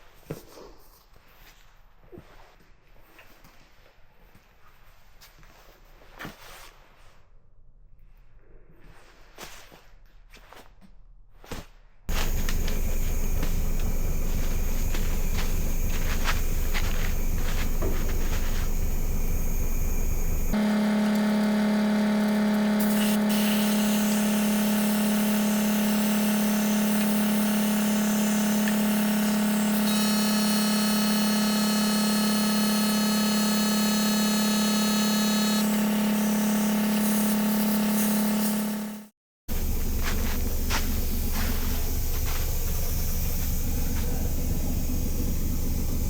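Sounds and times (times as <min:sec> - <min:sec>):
air compressor hum: 0:12.1 - 0:46.0
high whine: 0:12.1 - 0:46.0.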